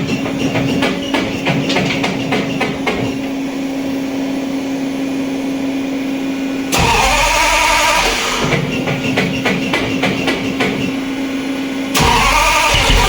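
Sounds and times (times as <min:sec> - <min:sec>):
car engine humming: 0:11.9 - 0:13.0
loud blast: 0:12.0 - 0:13.0.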